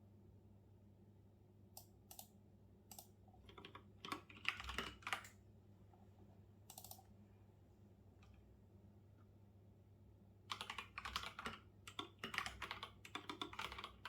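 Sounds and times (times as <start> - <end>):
computer keyboard typing: 2.9 - 5.4, 6.7 - 7.1, 10.5 - 14.0.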